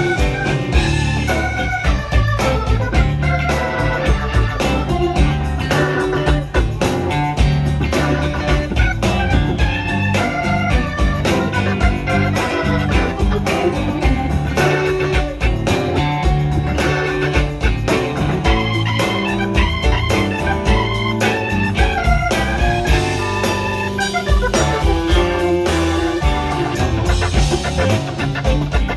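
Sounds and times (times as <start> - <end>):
blues band playing: 0.0 - 28.9
organ: 0.0 - 28.9
steady drum beat: 0.0 - 28.9.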